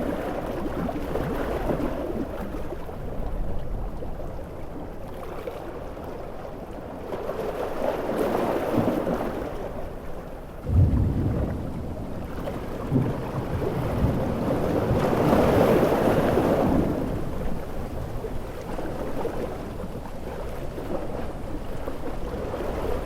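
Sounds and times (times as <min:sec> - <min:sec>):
heavy surf breaking waves: 0:07.2 - 0:23.0
low boom: 0:10.6 - 0:14.2.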